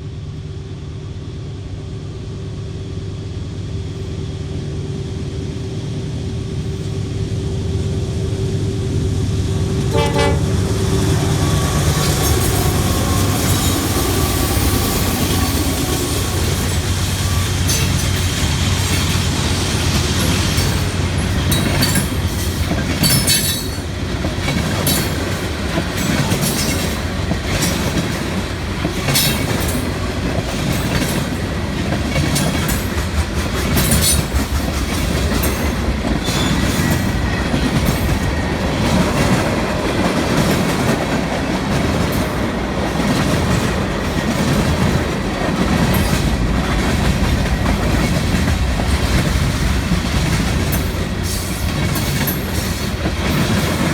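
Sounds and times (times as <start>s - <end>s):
freight train rumbling past: 0.0s - 53.9s
wheels clicking over rail joints: 11.7s - 53.9s.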